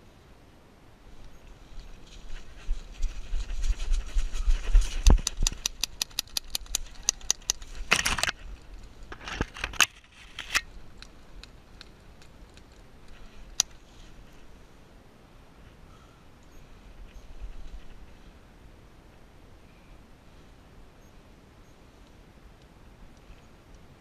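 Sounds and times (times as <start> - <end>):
rustling: 1.1 - 14.7.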